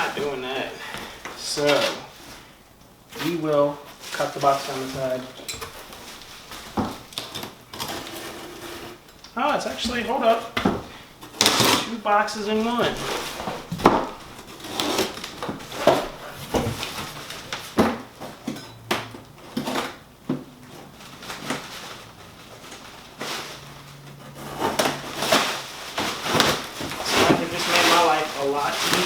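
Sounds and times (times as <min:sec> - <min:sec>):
cardboard knocks and scrapes: 0:05.7 - 0:09.0, 0:12.9 - 0:18.4, 0:24.2 - 0:29.0.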